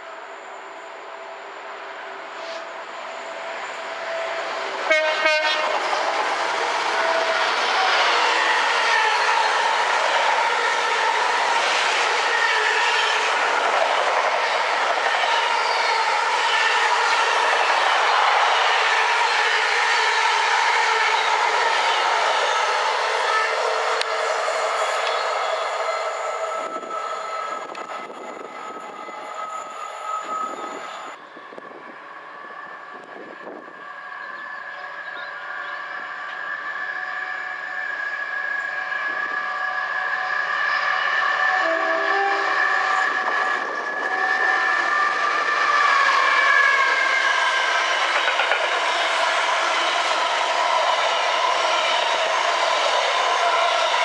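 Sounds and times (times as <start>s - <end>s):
train passing: 0.0s - 54.0s
train horn: 4.7s - 6.1s, 15.4s - 28.8s, 32.4s - 47.8s.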